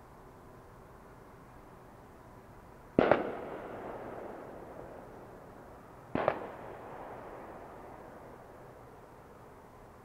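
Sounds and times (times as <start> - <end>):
firework bang: 3.0 - 4.5, 6.1 - 7.2
firework crack: 3.0 - 9.2.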